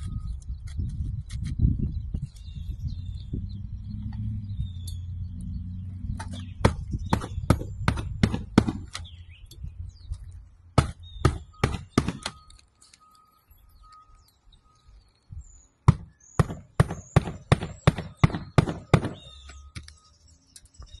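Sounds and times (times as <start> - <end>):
birds chirping faintly: 0.0 - 21.0
hammer blows: 10.8 - 12.4.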